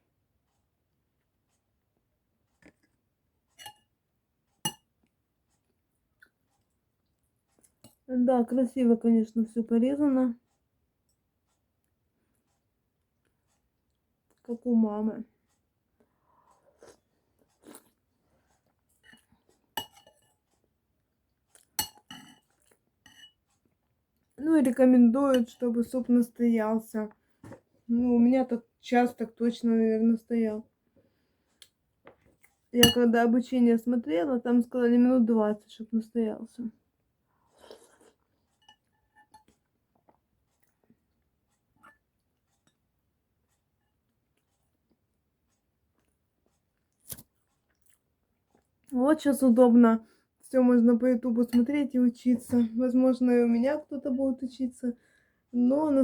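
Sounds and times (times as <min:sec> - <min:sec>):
quiet chewing: 0:02.4 - 0:03.7, 0:04.5 - 0:08.1, 0:10.4 - 0:14.5, 0:15.4 - 0:24.4, 0:30.9 - 0:32.7, 0:37.3 - 0:49.0
spoon clinking against dish: 0:04.7 - 0:04.9, 0:19.8 - 0:20.3, 0:21.8 - 0:23.4, 0:32.8 - 0:33.1.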